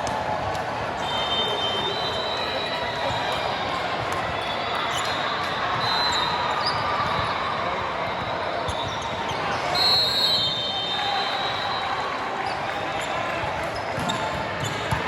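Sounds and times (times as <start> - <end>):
crowd chatter: 0.0 - 15.0
sneakers squeaking on court: 12.4 - 15.0.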